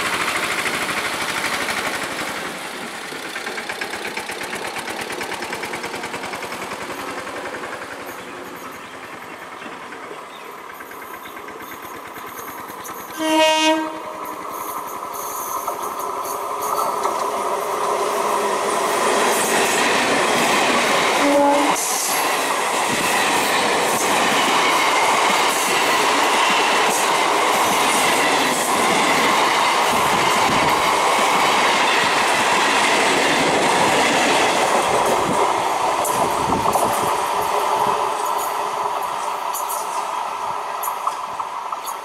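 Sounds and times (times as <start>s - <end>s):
train wheels rushing on rail: 0.0s - 42.0s
train horn note: 13.1s - 14.3s, 21.2s - 21.8s.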